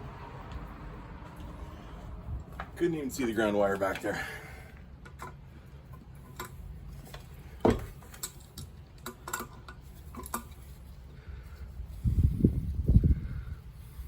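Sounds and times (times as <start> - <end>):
metal tools clinking: 6.2 - 10.8.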